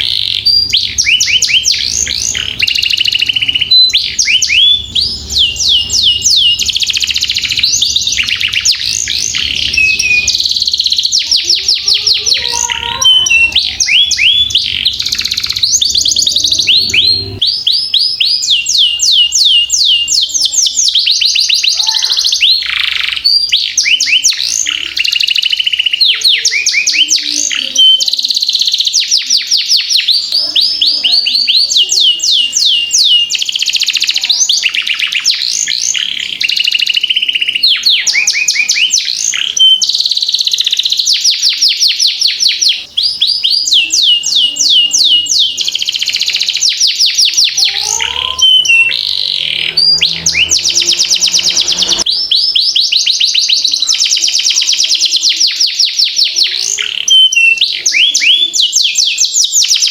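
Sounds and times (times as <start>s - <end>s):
canary singing in rolling trills: 0.0s - 59.9s.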